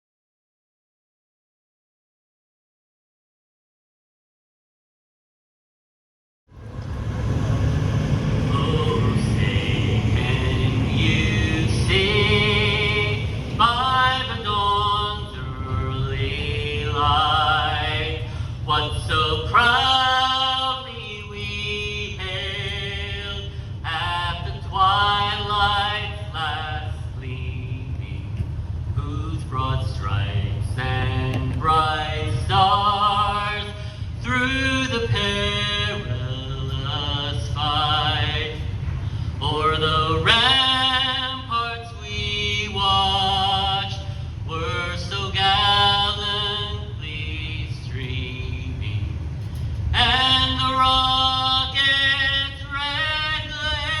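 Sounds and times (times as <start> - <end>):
low rumble: 6.5 - 54.0
person singing unaccompanied: 7.4 - 26.6.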